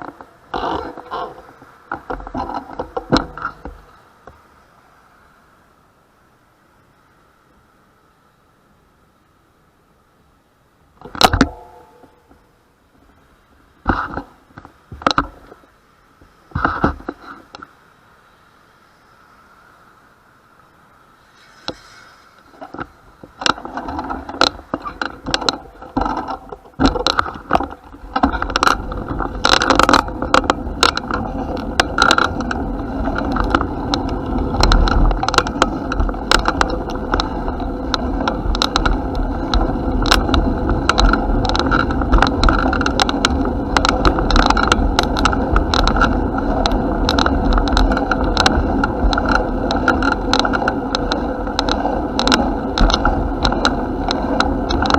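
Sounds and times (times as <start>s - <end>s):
bicycle rolling with rattles: 0.0s - 4.5s, 13.8s - 17.7s, 21.2s - 54.9s.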